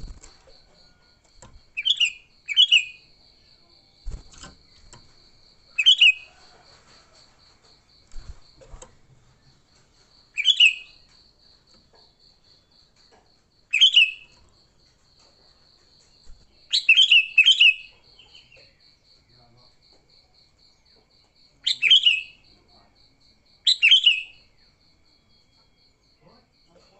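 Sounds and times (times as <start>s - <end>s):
bird chattering song: 1.6s - 3.1s, 5.7s - 6.3s, 10.4s - 11.0s, 13.7s - 14.4s, 16.6s - 18.8s, 21.6s - 22.5s, 23.7s - 24.5s.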